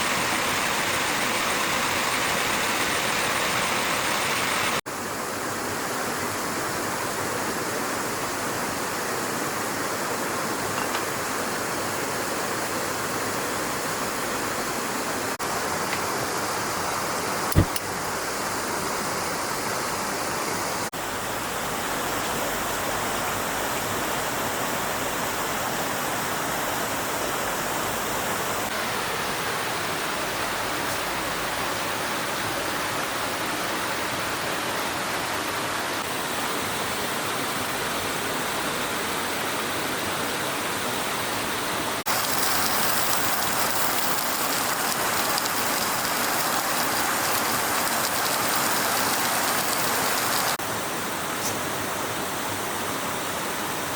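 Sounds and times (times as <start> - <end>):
stream water flowing: 0.0 - 25.9, 40.7 - 53.9.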